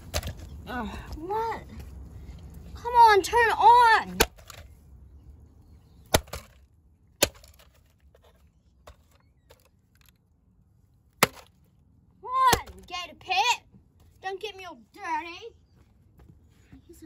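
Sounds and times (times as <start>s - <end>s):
hammer hitting plastic: 6.1s - 6.6s.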